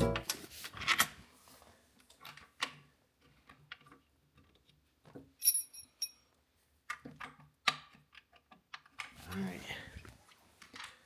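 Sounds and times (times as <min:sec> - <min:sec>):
metallic clink: 0:05.4 - 0:06.2.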